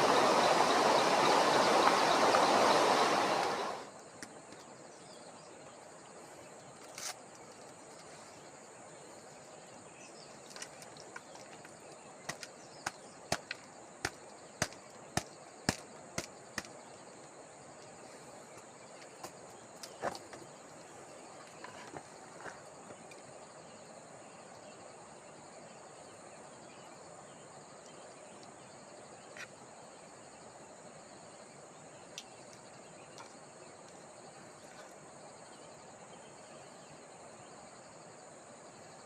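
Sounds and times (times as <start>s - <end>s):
steady high-pitched hiss: 0.0s - 39.0s.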